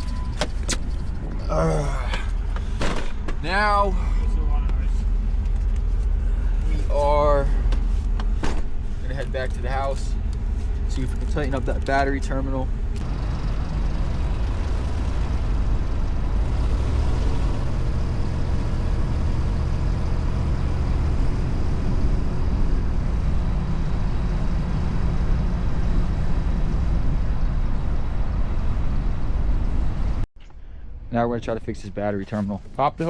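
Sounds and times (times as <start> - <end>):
vehicle engine and road noise: 0.0 - 30.3.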